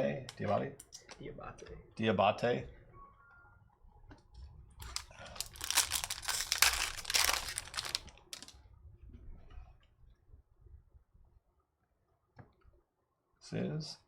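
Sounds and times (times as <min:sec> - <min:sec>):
rustling of handling: 0:04.8 - 0:08.5
wrapper tearing and crinkling: 0:04.8 - 0:08.5.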